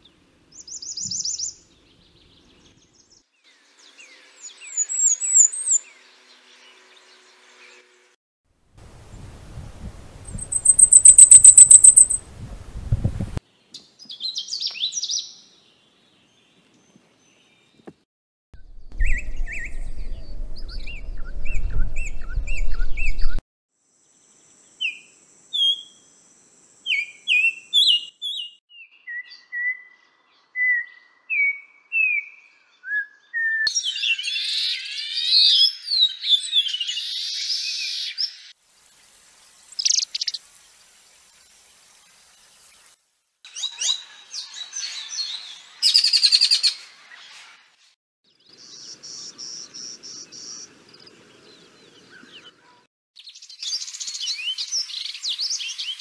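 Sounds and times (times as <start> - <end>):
bird calls and song: 0.0 - 8.1, 10.2 - 12.2, 13.4 - 18.0, 18.6 - 23.4, 24.4 - 26.0, 26.8 - 38.6, 39.5 - 40.5, 43.5 - 56.0
bird whistled song: 0.6 - 1.7, 3.9 - 6.0, 10.3 - 12.2, 18.6 - 23.4, 24.8 - 26.0, 26.8 - 38.5, 43.5 - 47.4, 52.1 - 56.0.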